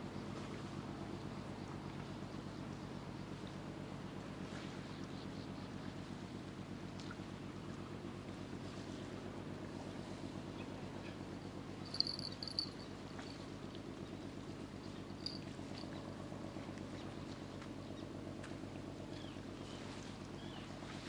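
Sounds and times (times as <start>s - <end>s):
ship engine drone: 11.6s - 13.3s.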